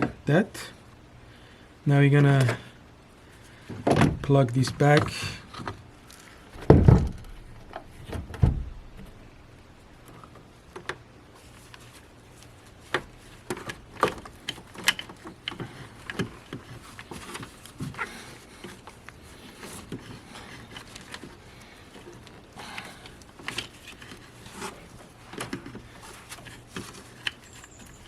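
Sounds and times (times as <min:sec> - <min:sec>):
dull thumps: 0:06.5 - 0:09.2.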